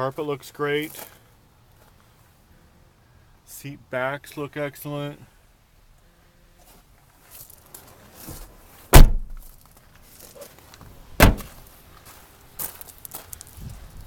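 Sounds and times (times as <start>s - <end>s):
truck doors slamming: 8.9s - 9.4s, 11.2s - 11.6s.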